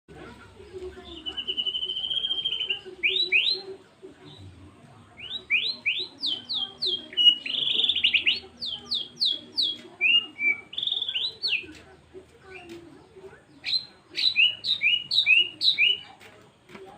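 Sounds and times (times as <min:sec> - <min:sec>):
bird singing whistled notes: 0:01.0 - 0:03.7, 0:05.2 - 0:11.6, 0:13.6 - 0:16.1.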